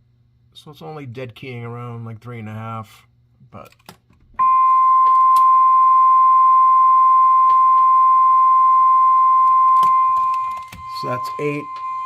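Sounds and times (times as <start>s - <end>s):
steady audio test tone: 4.4s - 12.0s.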